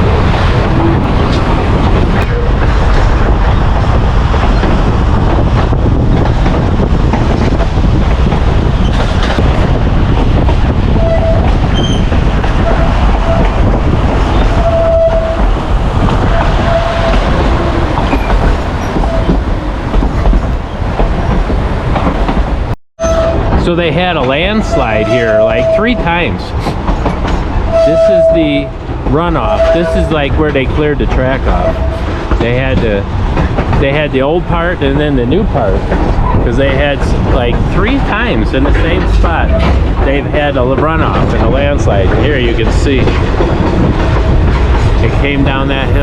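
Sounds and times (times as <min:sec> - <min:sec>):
train wheels rumbling on rails: 0:00.0 - 0:46.0
wheels squealing: 0:10.9 - 0:15.5.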